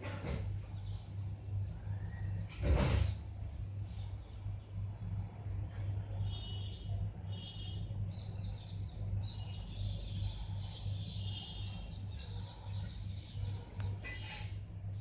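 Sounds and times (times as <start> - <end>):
low pulsing hum: 0.0 - 15.0
birds chirping: 0.4 - 2.5, 3.6 - 15.0.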